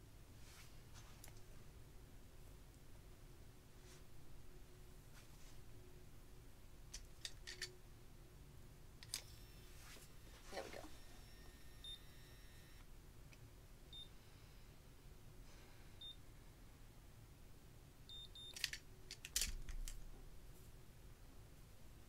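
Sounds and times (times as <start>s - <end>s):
hair curler beeping: 9.0s - 10.3s, 10.9s - 12.8s.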